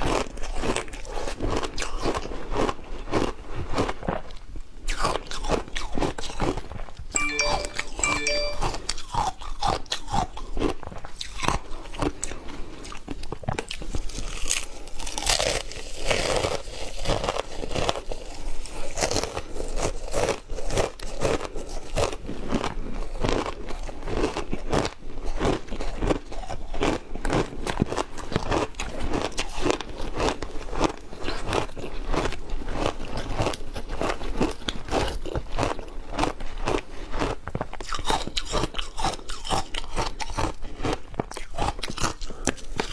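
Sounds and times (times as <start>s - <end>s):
ice being bitten and chewed: 25.5s - 42.9s.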